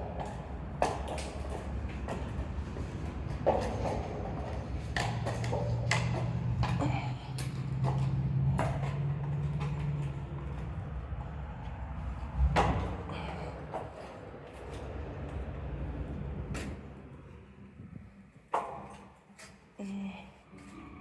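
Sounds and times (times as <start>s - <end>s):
low steady rumble: 1.7s - 18.5s.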